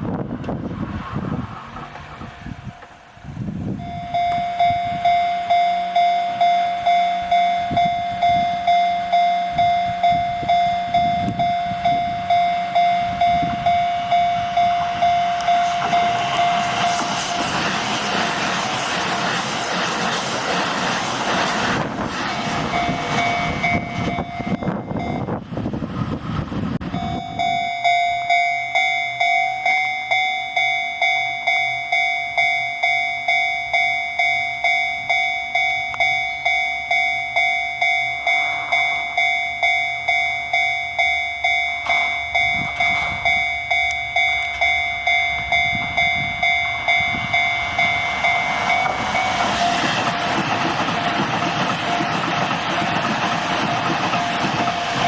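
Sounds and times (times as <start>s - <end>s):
crossing warning bell ringing: 0.0s - 55.0s
electric train running past: 0.0s - 55.0s.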